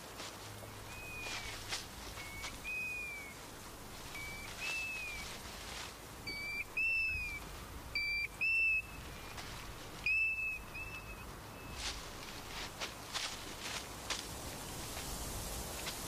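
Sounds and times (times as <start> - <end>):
bird whistled calls: 0.9 - 1.6, 2.2 - 3.4, 4.1 - 5.3, 6.3 - 7.4, 8.0 - 9.3, 10.0 - 11.8.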